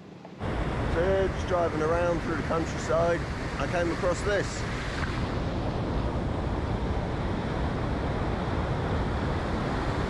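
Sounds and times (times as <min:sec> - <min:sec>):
water rushing over a weir: 0:00.4 - 0:06.2.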